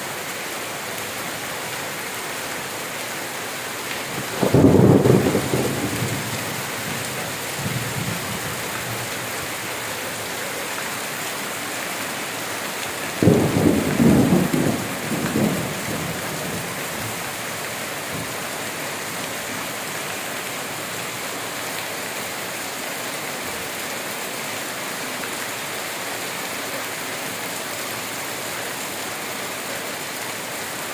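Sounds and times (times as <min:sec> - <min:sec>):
rain hissing: 0:00.8 - 0:22.8
thunder rumbling: 0:04.2 - 0:08.7, 0:13.2 - 0:16.7.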